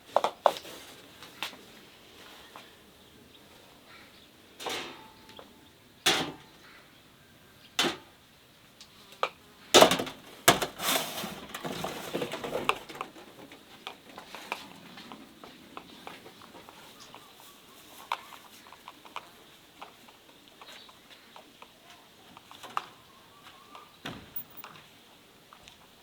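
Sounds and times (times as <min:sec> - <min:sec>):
kitchenware clattering and rattling: 0:09.8 - 0:13.7.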